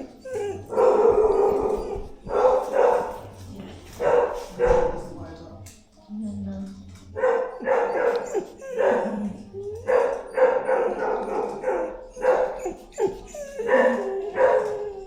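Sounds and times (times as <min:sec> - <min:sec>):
dog barking and yelping: 0:00.0 - 0:03.2, 0:07.2 - 0:15.0.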